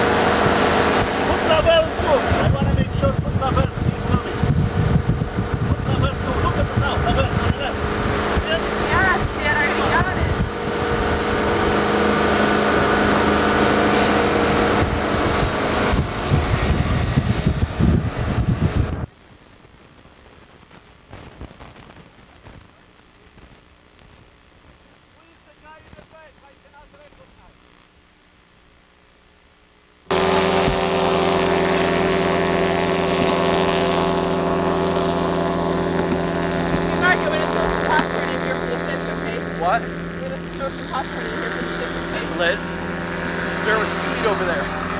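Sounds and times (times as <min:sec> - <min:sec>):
wind buffeting microphone: 0:00.0 - 0:19.1, 0:30.1 - 0:44.9
motorboat engine running: 0:00.0 - 0:19.2, 0:30.0 - 0:44.9.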